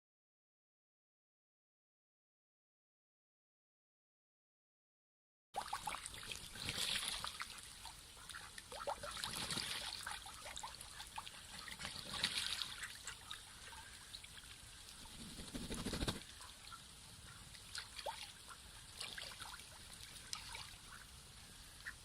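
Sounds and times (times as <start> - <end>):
water trickling: 5.6 - 15.4, 16.2 - 22.0
ducks splashing in water: 5.6 - 22.0.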